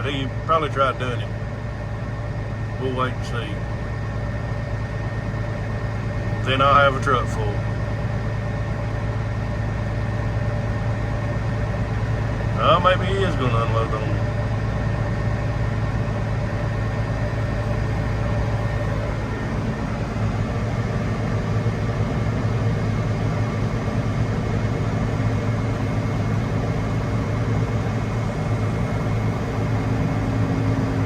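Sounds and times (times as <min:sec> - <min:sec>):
tractor engine droning: 0:00.0 - 0:31.0.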